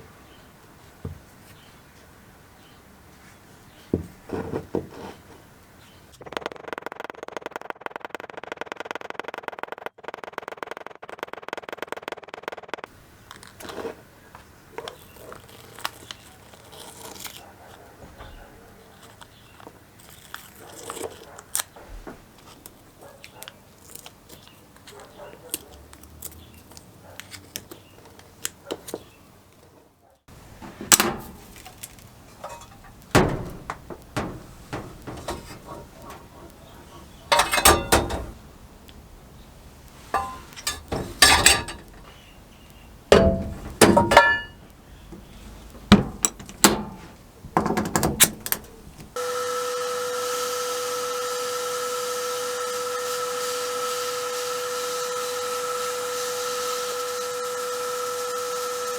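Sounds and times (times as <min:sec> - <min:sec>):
metal parts clinking on workbench: 0:31.0 - 0:36.2, 0:37.3 - 0:38.4, 0:40.1 - 0:42.1, 0:43.1 - 0:44.6
high-pitched machine hum: 0:49.2 - 0:58.9.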